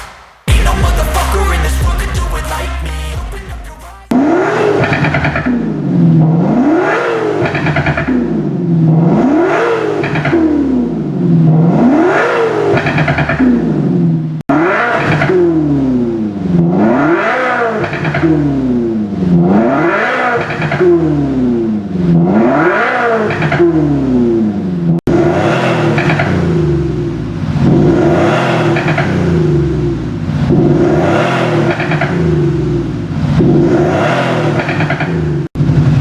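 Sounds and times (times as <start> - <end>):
engine revving: 0.0 - 36.0
synthetic engine note: 0.5 - 5.1.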